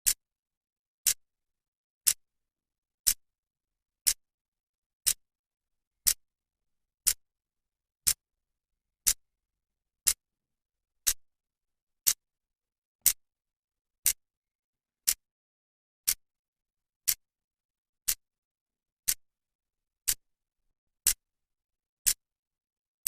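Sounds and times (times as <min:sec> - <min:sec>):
clock ticking: 0:04.0 - 0:04.2, 0:08.0 - 0:08.2, 0:10.0 - 0:10.2, 0:12.0 - 0:12.2, 0:15.0 - 0:15.3, 0:17.0 - 0:17.2, 0:18.0 - 0:18.2, 0:19.0 - 0:19.2, 0:20.0 - 0:20.2.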